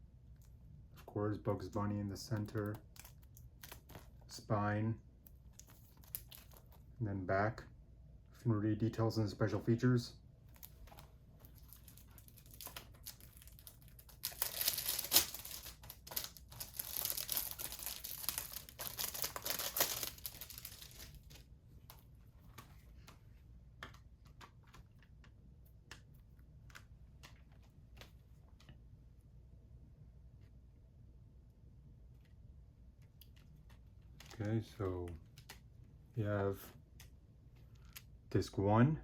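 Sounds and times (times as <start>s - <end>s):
plastic wrap tearing and crinkling: 10.5s - 21.4s.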